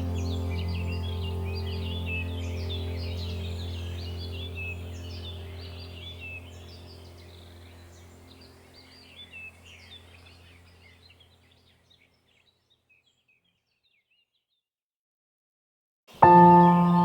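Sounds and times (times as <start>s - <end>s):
steady low drone: 0.0s - 10.6s
birds chirping: 0.0s - 14.4s, 16.1s - 17.0s.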